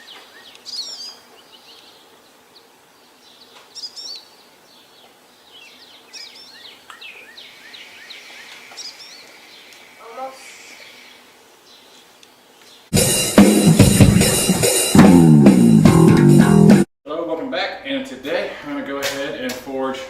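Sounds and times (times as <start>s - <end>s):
faint background noise: 0.0s - 12.9s, 17.1s - 20.0s
songbirds warbling: 0.0s - 12.9s.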